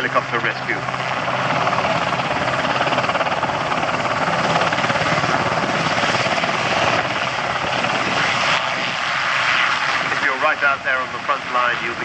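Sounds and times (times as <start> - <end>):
helicopter flying past: 0.0 - 12.0.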